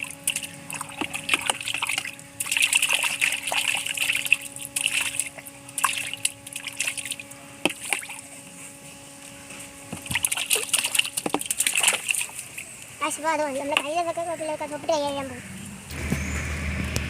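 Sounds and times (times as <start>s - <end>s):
water trickling and splashing: 0.0s - 8.3s, 10.0s - 14.0s
water sloshing: 0.0s - 8.4s, 9.9s - 14.8s
steady low hum: 0.0s - 17.0s.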